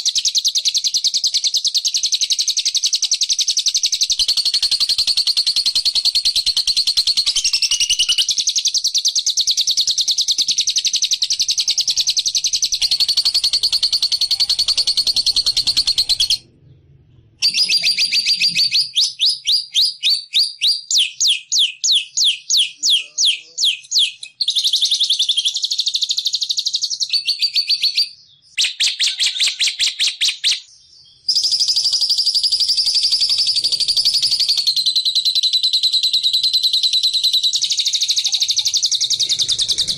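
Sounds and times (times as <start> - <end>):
lovebird chattering trill: 0.0 - 16.4, 31.3 - 39.9
sharp bird chirps: 0.0 - 16.7, 17.4 - 39.9.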